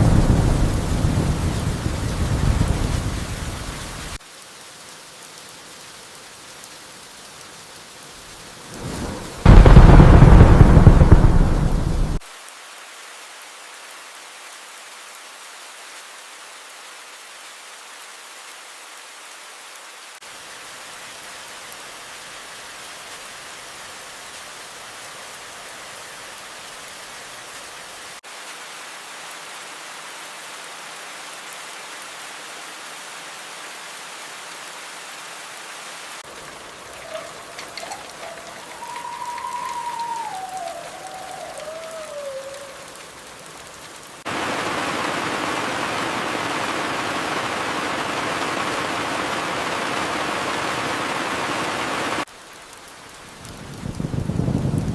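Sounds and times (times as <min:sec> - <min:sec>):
loud thunder clap: 0:00.0 - 0:03.5, 0:08.8 - 0:12.2
steady rain falling: 0:00.0 - 0:54.9
faint whistling tone: 0:37.0 - 0:42.9.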